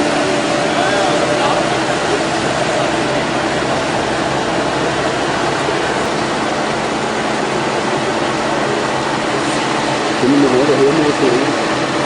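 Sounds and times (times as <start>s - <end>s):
construction machine engine rumbling: 0.0s - 12.0s.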